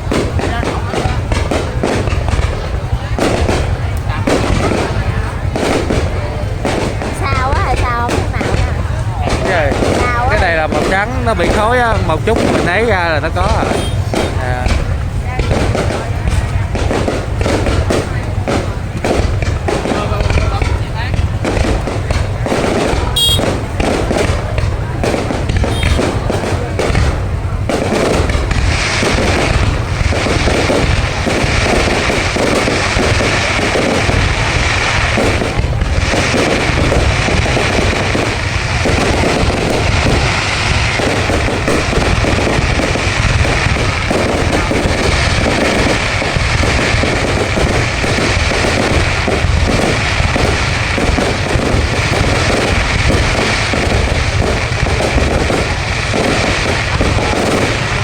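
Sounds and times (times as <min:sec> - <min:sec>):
fireworks bangs and crackles: 0:00.0 - 0:58.0
fireworks low booms: 0:00.0 - 0:58.0.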